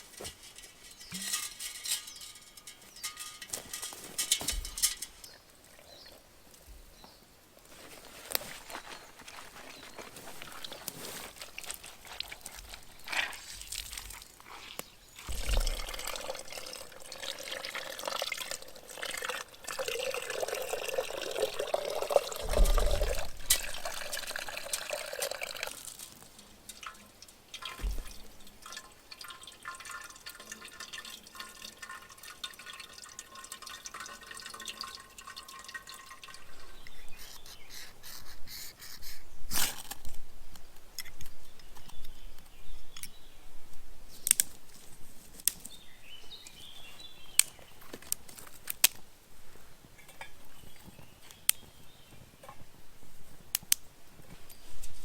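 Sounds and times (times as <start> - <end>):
water pouring and trickling: 0.0 - 6.6, 7.7 - 38.2.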